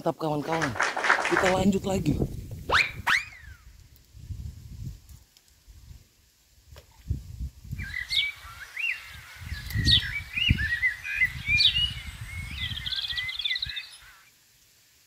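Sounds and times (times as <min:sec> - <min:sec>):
songbird warbling: 0:07.8 - 0:14.3.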